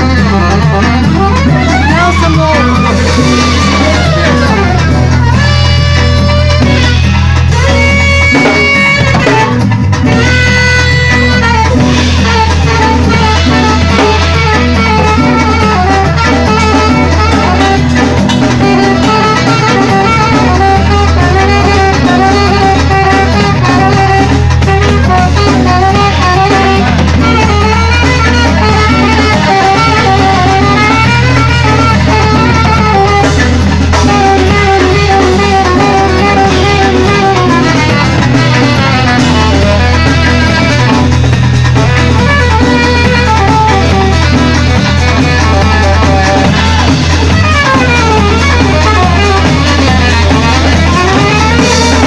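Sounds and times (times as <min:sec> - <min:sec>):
bass: 0:00.0 - 0:52.0
drums: 0:00.0 - 0:52.0
wavering melody line: 0:00.0 - 0:52.0.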